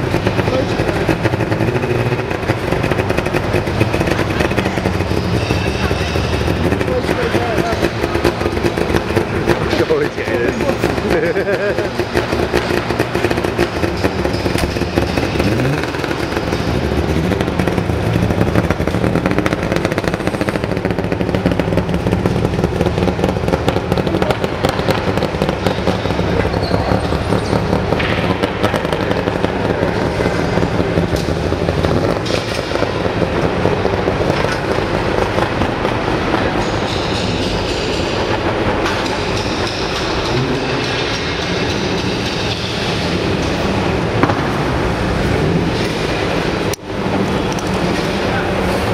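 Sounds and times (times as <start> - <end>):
two-stroke car engine running: 0.0 - 48.9.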